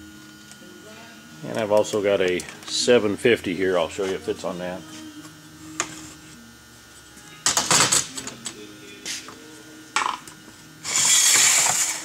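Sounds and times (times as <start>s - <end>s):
loud metal scraping: 10.8s - 12.0s.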